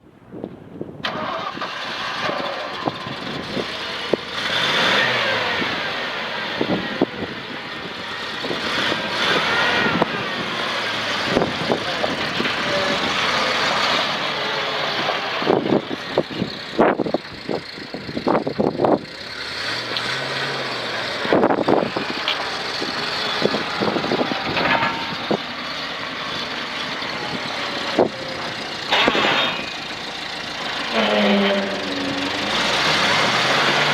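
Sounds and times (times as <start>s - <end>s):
truck engine running: 1.0s - 33.9s.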